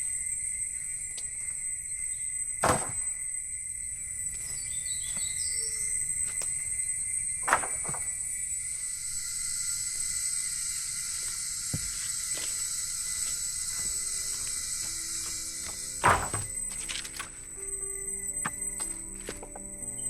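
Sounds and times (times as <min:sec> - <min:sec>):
high-pitched insect drone: 0:00.0 - 0:20.0
bird chirps: 0:04.4 - 0:07.3
sharp knocks: 0:15.7 - 0:16.6.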